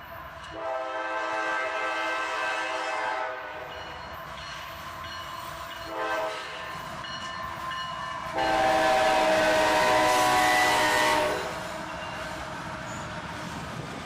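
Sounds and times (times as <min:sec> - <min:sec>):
low rumble of train: 0:00.0 - 0:14.0
train air horn blasts: 0:00.6 - 0:03.8, 0:05.9 - 0:06.6, 0:08.3 - 0:11.9.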